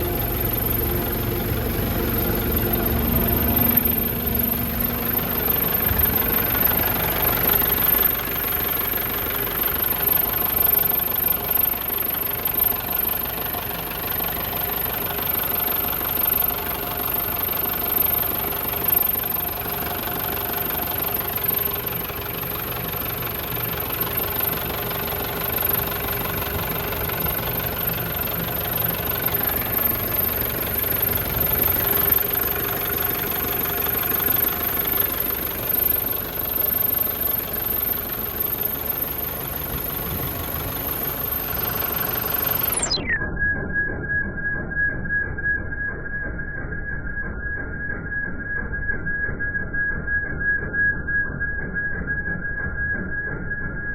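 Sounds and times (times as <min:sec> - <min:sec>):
truck diesel engine running: 0:00.0 - 0:43.0.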